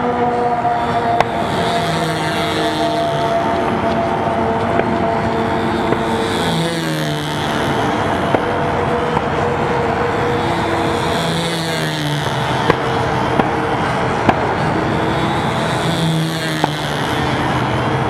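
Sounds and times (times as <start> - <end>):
model airplane engine running: 0.0 - 18.0.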